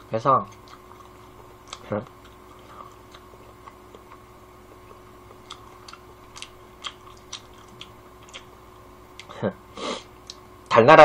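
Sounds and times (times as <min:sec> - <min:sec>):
low steady hum: 0:00.0 - 0:11.0
wet mouth clicks chewing: 0:00.5 - 0:08.5.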